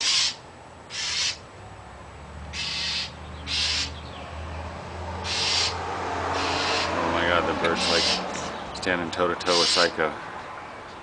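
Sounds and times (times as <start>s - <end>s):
bird squawking harshly: 0.0s - 1.4s, 2.5s - 4.0s, 5.2s - 7.0s, 7.7s - 8.3s, 9.5s - 10.0s.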